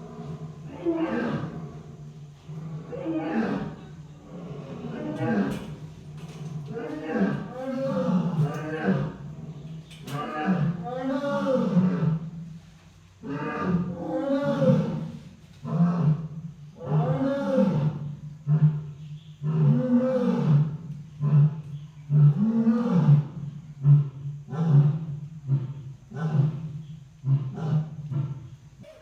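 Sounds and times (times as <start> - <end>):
lion roaring: 0.0 - 12.3, 13.2 - 29.0.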